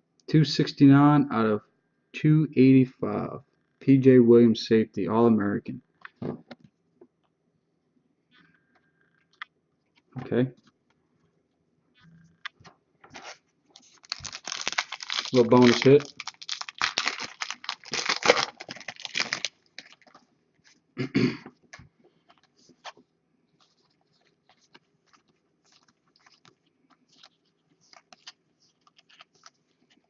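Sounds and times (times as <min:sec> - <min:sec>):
wrapper crinkling and tearing: 0:13.8 - 0:20.3, 0:23.6 - 0:30.0.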